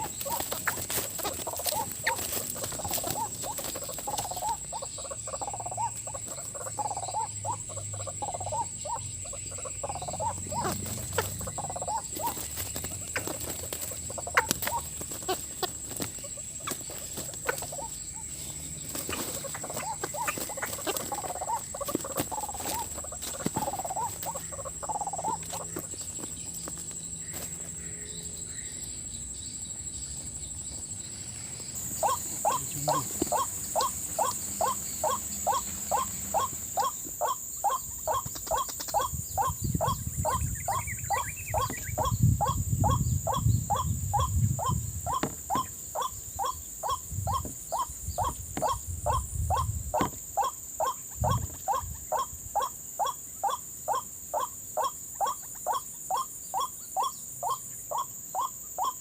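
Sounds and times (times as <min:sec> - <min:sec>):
waterhen calling: 0:00.0 - 0:26.0, 0:31.8 - 0:59.0
low muffled noises: 0:30.7 - 0:36.9.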